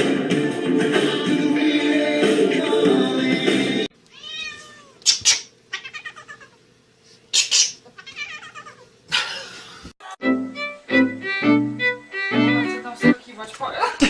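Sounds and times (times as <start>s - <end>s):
cat meowing and yowling: 4.1s - 5.0s, 5.7s - 6.6s, 8.0s - 8.8s.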